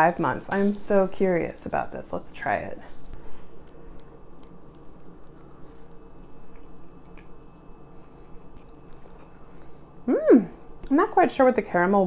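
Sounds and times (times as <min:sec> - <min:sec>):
low hum: 0:00.0 - 0:12.0
person chewing cheese: 0:03.1 - 0:10.0.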